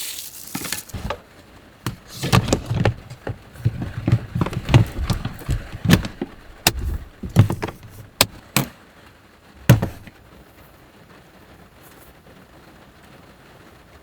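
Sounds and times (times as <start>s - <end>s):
knocks and clunks: 1.0s - 1.2s, 1.9s - 8.7s, 9.6s - 10.1s.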